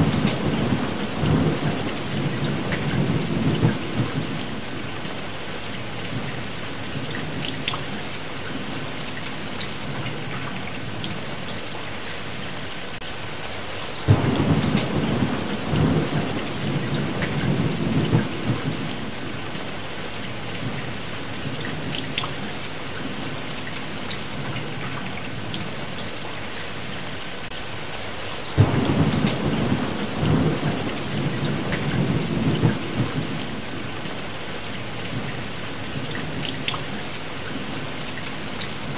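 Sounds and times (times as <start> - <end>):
heavy rain: 0.0 - 38.9
thunder rolling: 14.1 - 19.2, 28.6 - 33.6.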